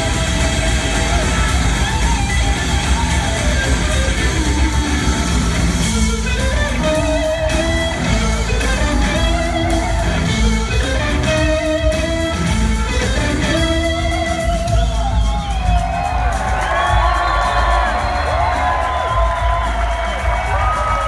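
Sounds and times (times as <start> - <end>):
electric guitar held notes: 0.0 - 16.1
live rock band jamming: 0.0 - 21.0.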